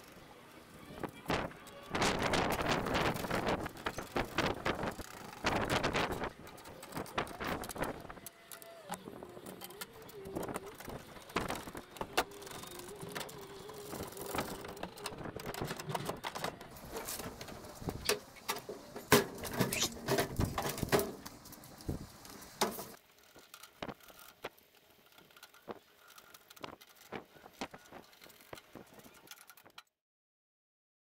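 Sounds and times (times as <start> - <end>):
metal tool cart clattering: 10.8 - 21.7.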